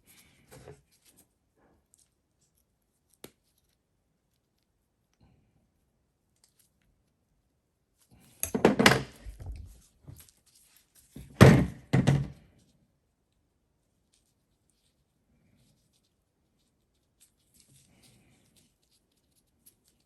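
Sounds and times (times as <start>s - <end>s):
metal parts thunking and knocking: 8.4s - 9.6s, 11.2s - 12.4s.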